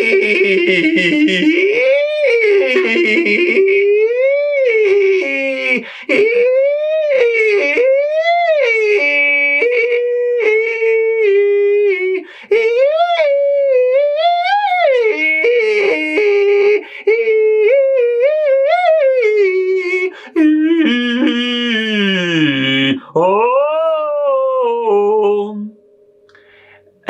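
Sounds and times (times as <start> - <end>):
man singing vocal exercise: 0.0 - 25.8
man breathing in: 5.8 - 6.1, 12.2 - 12.5, 16.8 - 17.1, 26.3 - 27.0.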